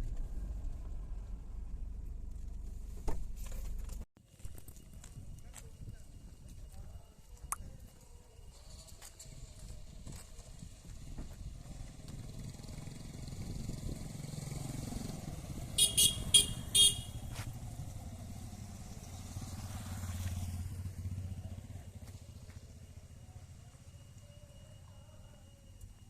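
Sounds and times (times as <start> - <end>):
vehicle passing on road: 10.6 - 24.9
short horn beeps: 15.8 - 17.4.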